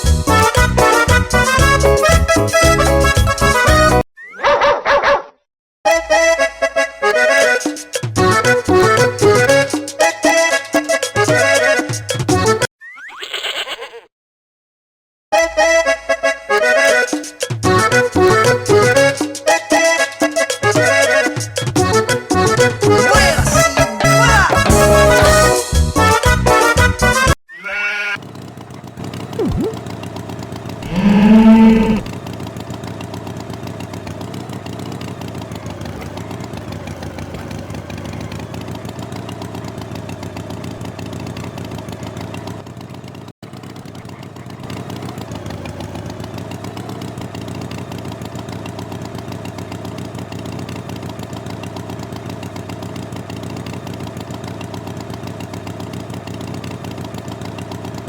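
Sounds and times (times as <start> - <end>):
engine idling: 28.2 - 58.0
cow mooing: 30.8 - 32.1.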